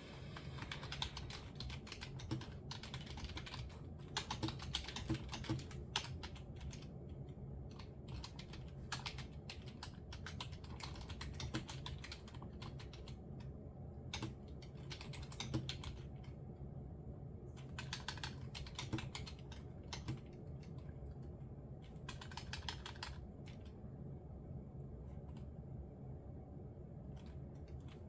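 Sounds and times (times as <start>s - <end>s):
low steady hum: 0.0s - 28.0s
computer keyboard typing: 0.3s - 13.5s, 14.1s - 16.4s, 17.6s - 21.0s, 21.8s - 23.8s
sharp keyboard clicks: 0.6s - 7.0s, 7.7s - 13.5s, 14.1s - 16.3s, 17.6s - 20.9s, 21.8s - 23.8s.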